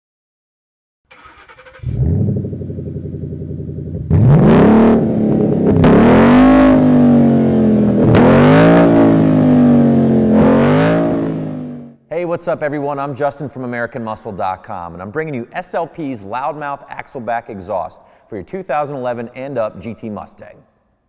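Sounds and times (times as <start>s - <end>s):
car engine idling and revving: 1.1s - 12.0s.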